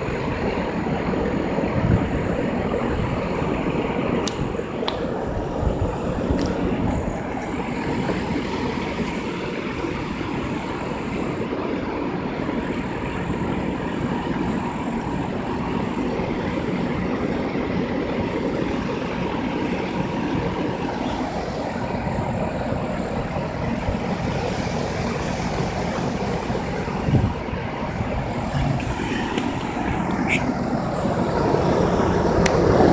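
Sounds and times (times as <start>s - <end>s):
air conditioner hum: 18.4s - 32.9s.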